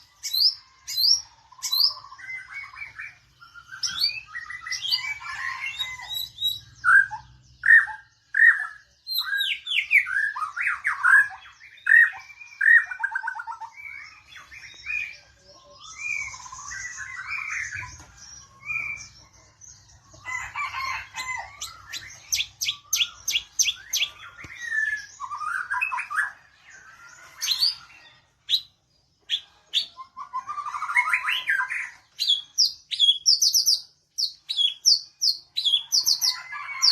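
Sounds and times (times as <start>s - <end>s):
bird singing whistled phrases: 29.8s - 33.8s.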